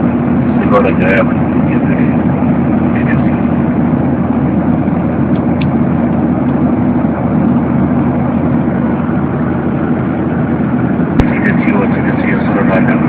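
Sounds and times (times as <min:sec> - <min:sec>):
airplane cabin noise: 0:00.0 - 0:13.0.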